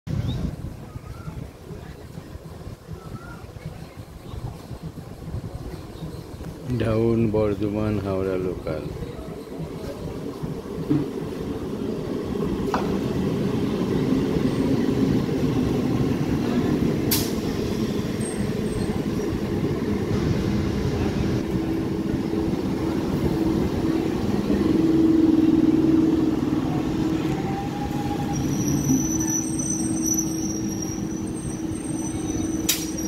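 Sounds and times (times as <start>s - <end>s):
steady train hum: 0.1s - 33.0s
train wheels rumbling on rail: 0.1s - 33.0s
sharp clack: 32.7s - 33.0s.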